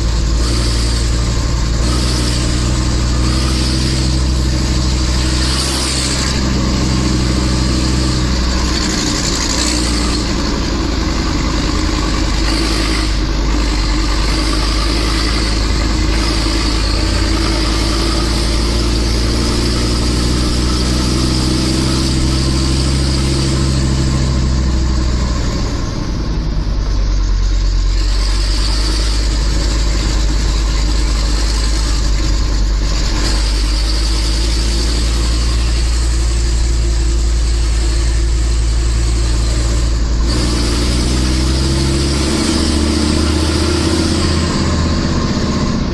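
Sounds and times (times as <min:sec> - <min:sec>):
truck diesel engine pulling uphill: 0:00.0 - 0:45.9.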